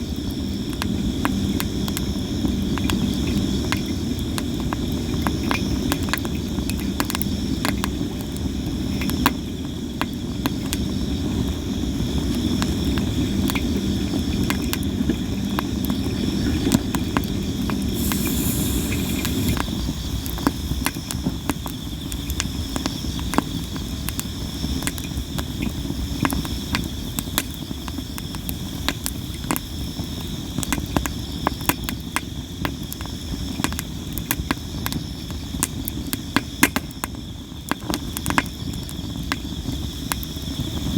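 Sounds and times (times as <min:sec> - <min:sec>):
low flame noise: 0:00.0 - 0:27.4, 0:39.1 - 0:40.9
firewood crackling and popping: 0:00.0 - 0:40.9
insects trilling: 0:00.0 - 0:40.9
brief hiss: 0:17.9 - 0:19.6.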